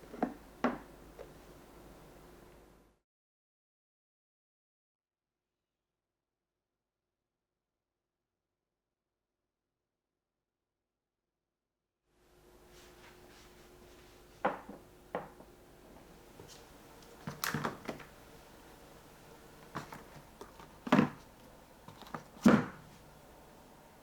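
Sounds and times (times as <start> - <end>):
kitchen things knocking on counter: 0.0 - 1.4, 14.4 - 18.2, 19.6 - 23.0.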